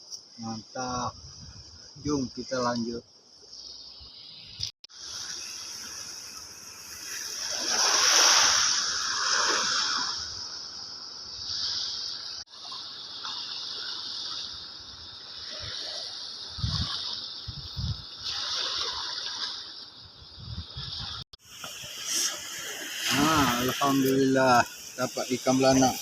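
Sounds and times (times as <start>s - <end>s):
steady high hiss: 0.0s - 18.2s, 19.7s - 26.0s
shallow water sloshing and splashing: 6.9s - 10.2s, 11.6s - 20.0s.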